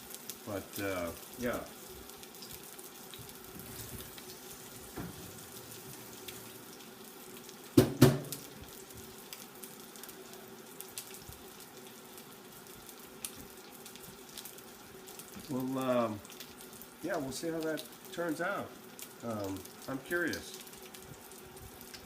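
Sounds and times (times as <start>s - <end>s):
chicken sizzling in hot oil: 0.0s - 22.0s
sharp knocks: 7.8s - 8.3s.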